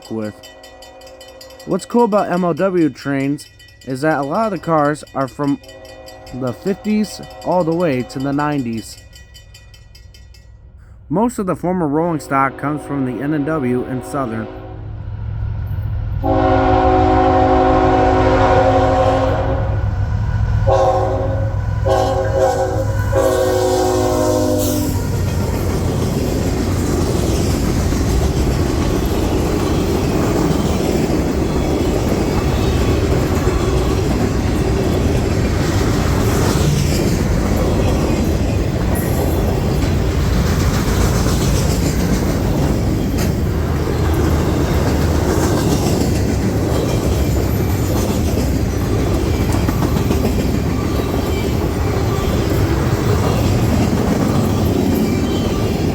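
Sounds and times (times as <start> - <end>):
locomotive air horn blasts: 12.4 - 14.9, 16.2 - 19.8, 20.7 - 25.0
train wheels clattering on rail: 21.9 - 55.9.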